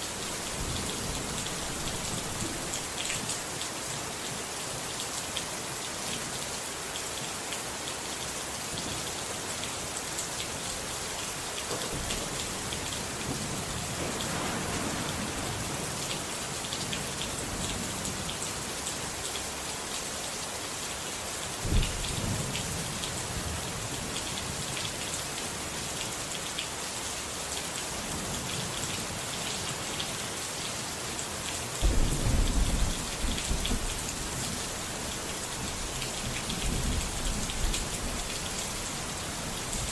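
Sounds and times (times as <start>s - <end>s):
heavy rain falling: 0.0s - 39.9s
thunder rumbling: 11.9s - 16.0s, 31.8s - 39.3s.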